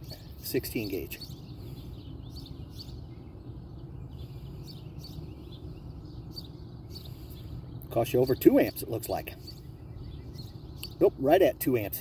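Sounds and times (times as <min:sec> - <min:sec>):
bird chirps: 0:00.0 - 0:12.0
steady low rumble: 0:00.0 - 0:12.0.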